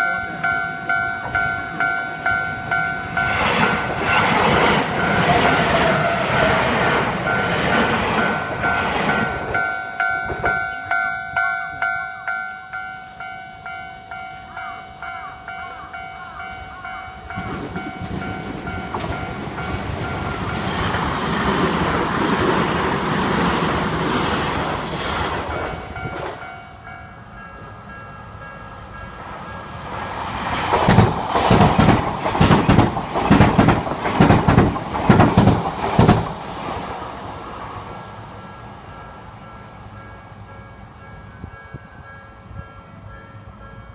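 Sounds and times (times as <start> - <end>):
train wheels clacking: 0.0 - 27.8, 28.5 - 36.8
crossing warning bell clanging: 0.0 - 36.4, 38.3 - 43.9
train rumble: 0.0 - 43.9.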